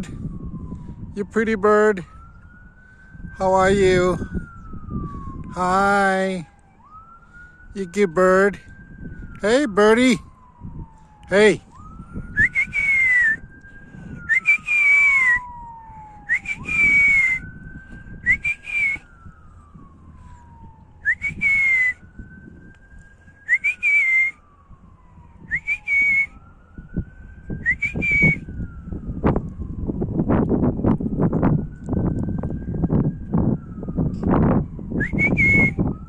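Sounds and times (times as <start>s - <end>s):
emergency siren wailing: 0.0s - 36.0s
breathy whistled notes: 12.4s - 15.4s, 23.4s - 24.4s.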